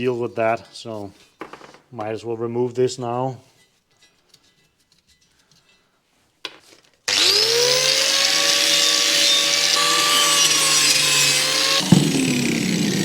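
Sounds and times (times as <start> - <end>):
power tool motor spinning: 7.1 - 13.0.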